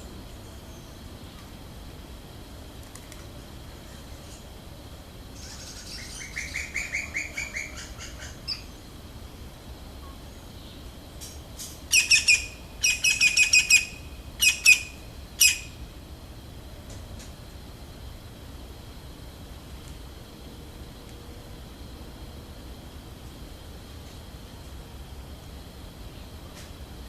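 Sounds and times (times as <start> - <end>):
birds chirping: 5.4 - 8.8, 11.9 - 15.8.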